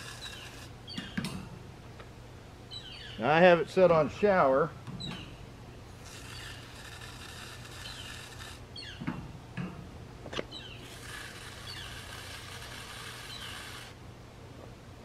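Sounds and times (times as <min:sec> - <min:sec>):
bird chirping: 0:00.1 - 0:01.4, 0:02.7 - 0:03.3, 0:05.0 - 0:05.4, 0:07.7 - 0:09.0, 0:10.5 - 0:12.2.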